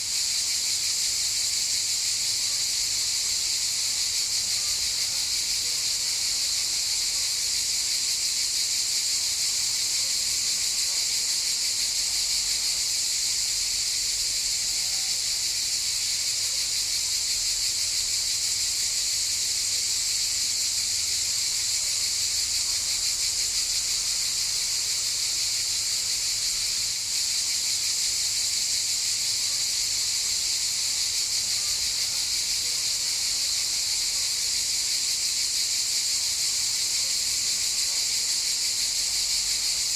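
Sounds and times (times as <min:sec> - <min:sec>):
cicadas buzzing: 0:00.0 - 0:06.5, 0:11.3 - 0:39.9.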